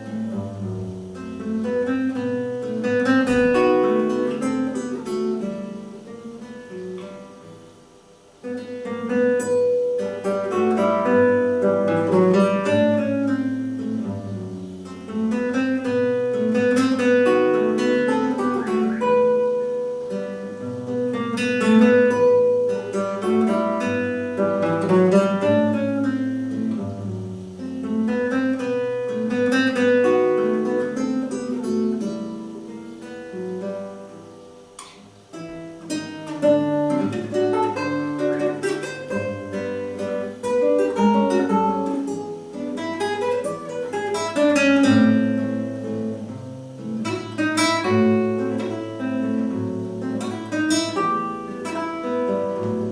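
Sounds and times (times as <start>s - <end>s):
slow lyrical classical solo: 0.0s - 52.9s.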